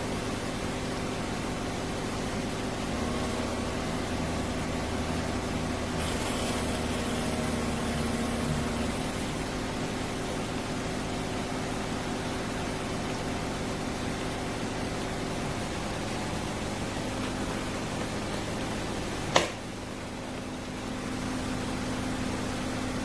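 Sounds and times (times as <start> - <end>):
coffee maker hissing: 2.9 - 9.8.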